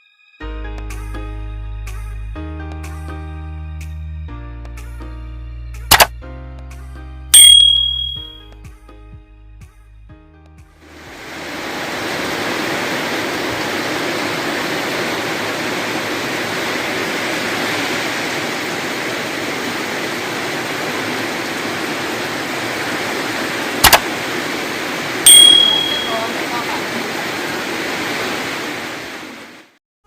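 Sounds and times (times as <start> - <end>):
quick clicks: 5.9 - 6.1, 23.8 - 24.1
high-pitched tone: 7.4 - 8.4, 25.3 - 26.4
rain falling in wind: 10.8 - 29.8.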